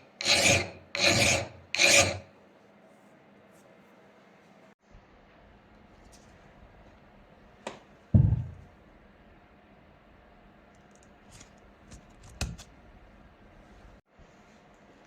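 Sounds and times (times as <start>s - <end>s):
heavy thump: 8.1s - 8.7s.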